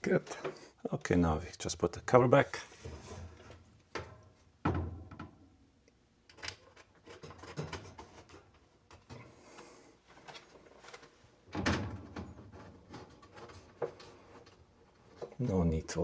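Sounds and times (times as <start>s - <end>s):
light clicks and scrapes: 12.5s - 15.6s.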